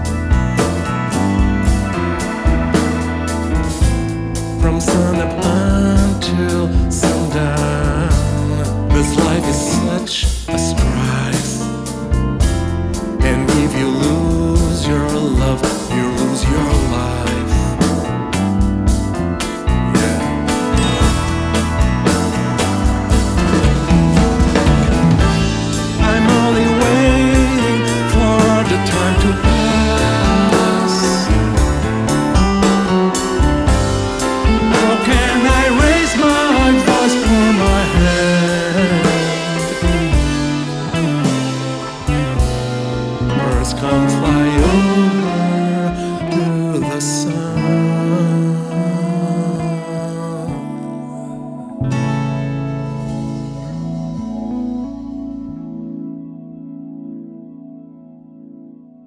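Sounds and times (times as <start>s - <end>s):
drums keeping a beat: 0.0s - 46.2s
prog rock band music: 0.0s - 59.0s.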